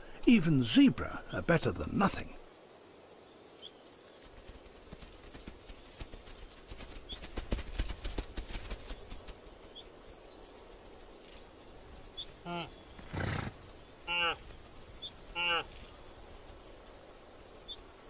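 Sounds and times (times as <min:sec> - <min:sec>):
bird chirping: 0:07.0 - 0:07.8, 0:09.7 - 0:16.4, 0:17.5 - 0:18.0.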